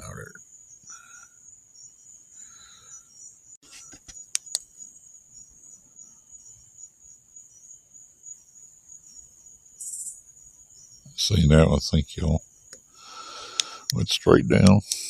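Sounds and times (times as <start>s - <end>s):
crickets chirring: 0.0s - 15.0s
sharp clicks: 3.9s - 4.7s, 13.5s - 14.0s, 14.6s - 15.0s.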